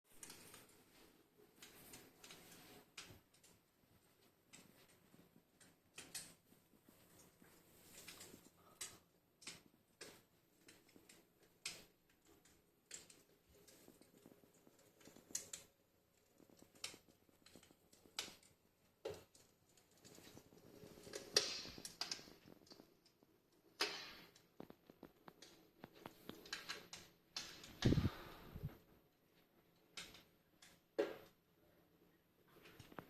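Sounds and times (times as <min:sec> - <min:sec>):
wood fire crackling: 0:00.1 - 0:33.0
fire hissing flare-ups: 0:27.4 - 0:28.8.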